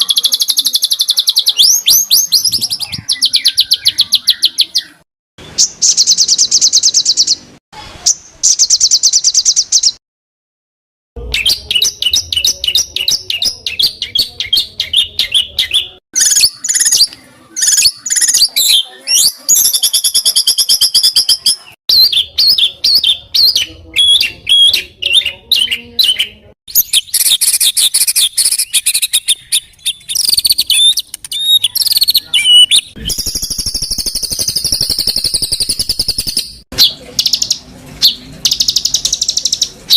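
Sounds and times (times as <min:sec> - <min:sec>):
songbird trills and chattering: 0:11.4 - 0:39.9.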